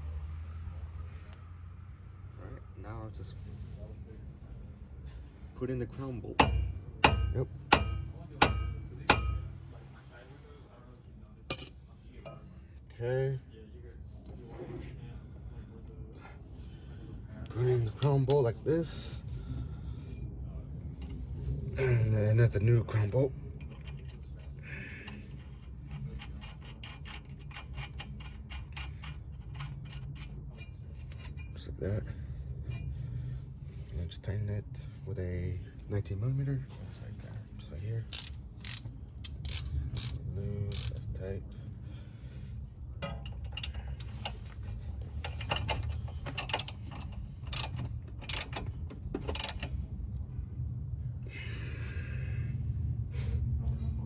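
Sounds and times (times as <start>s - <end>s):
steady low rumble: 0.0s - 26.2s, 28.9s - 54.0s
ratchet wrench clicking: 38.1s - 41.0s, 43.0s - 44.4s, 45.2s - 49.8s
sharp metal clicks: 38.1s - 41.0s, 45.2s - 49.7s.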